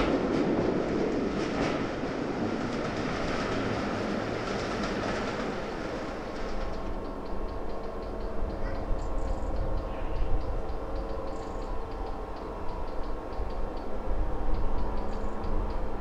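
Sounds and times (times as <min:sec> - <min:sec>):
diesel locomotive engine rumble: 0:00.0 - 0:16.0.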